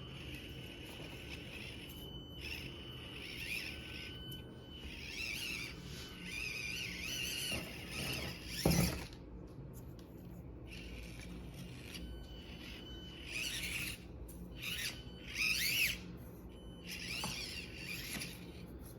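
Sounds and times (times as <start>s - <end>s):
toy car motor whining: 0.0s - 9.1s, 10.7s - 18.7s.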